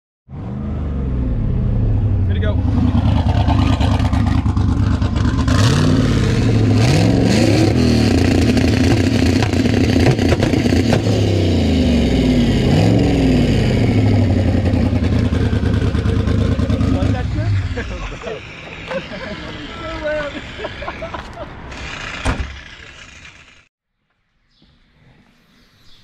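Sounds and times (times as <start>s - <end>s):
car engine revving: 0.3s - 23.7s
tyre and exhaust noise: 0.3s - 25.5s.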